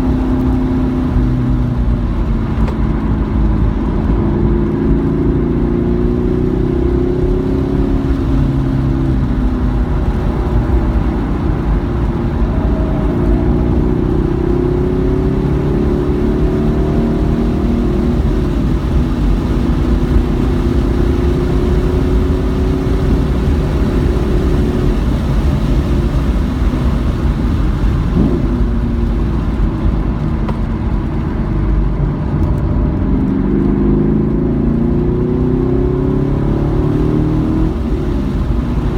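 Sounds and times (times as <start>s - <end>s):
car engine accelerating: 0.0s - 38.9s
road and wind rumble: 0.0s - 38.9s.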